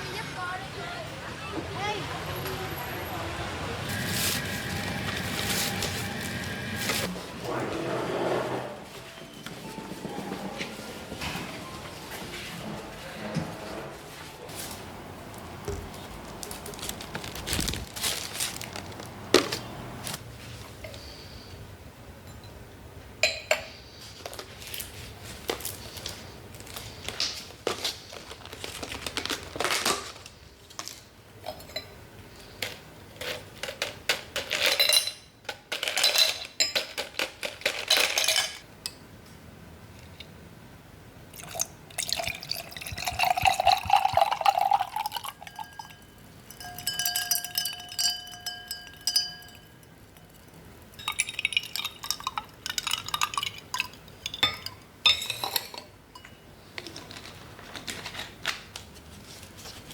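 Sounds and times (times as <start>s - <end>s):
glasses and dishes clinking: 22.2s - 22.6s, 23.2s - 23.8s, 31.4s - 32.0s, 34.6s - 37.1s, 37.7s - 39.0s, 41.4s - 56.5s
liquid pouring into glass: 41.3s - 49.6s, 50.3s - 54.4s
glass ringing tone: 42.0s - 56.5s.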